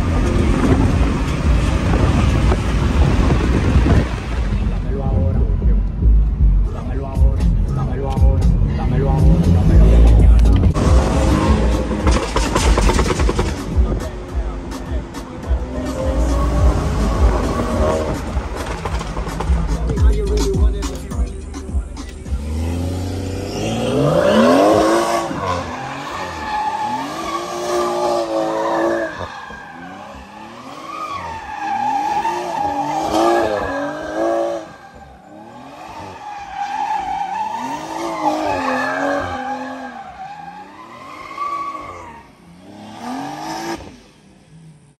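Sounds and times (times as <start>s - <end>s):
car engine revving: 0.0s - 45.0s
tyres squealing: 23.5s - 42.3s.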